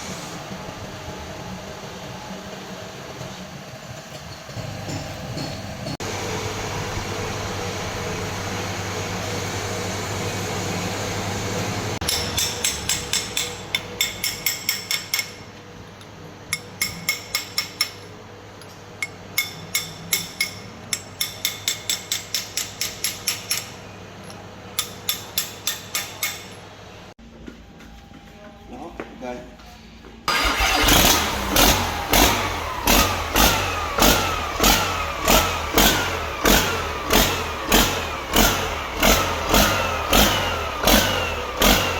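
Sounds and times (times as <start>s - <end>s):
hammer striking metal: 12.0s - 15.5s, 16.5s - 26.6s.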